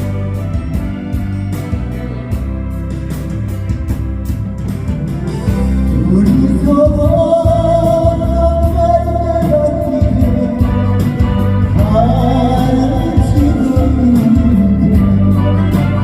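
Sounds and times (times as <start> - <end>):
band backing with guitar and organ: 0.0 - 16.0
person singing a slow ballad: 5.5 - 16.0.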